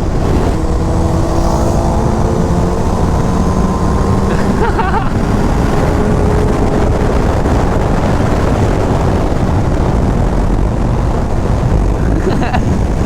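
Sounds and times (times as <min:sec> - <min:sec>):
motorcycle engine: 0:00.0 - 0:12.0
wind rushing over microphone: 0:00.0 - 0:13.0.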